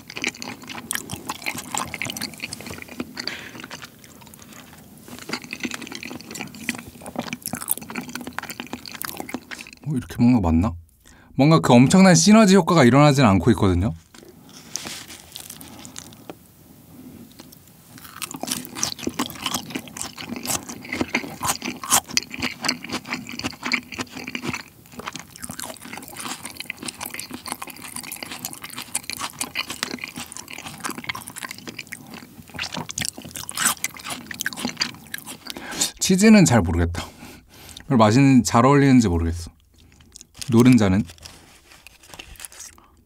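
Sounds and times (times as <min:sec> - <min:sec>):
close-miked wet chewing: 0:00.0 - 0:09.9, 0:17.2 - 0:36.0, 0:39.5 - 0:43.0.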